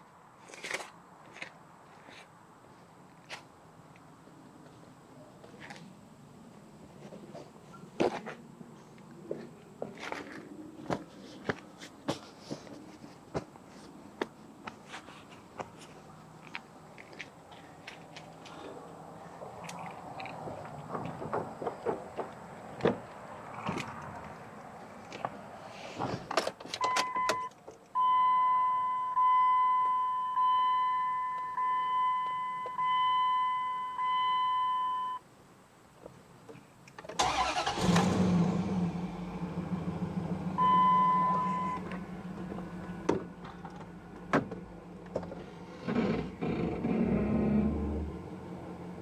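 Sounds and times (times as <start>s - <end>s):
dashboard warning chime: 26.9s - 35.2s, 40.6s - 41.9s
car engine cranking and starting: 37.1s - 49.0s
car engine idling: 37.2s - 45.3s.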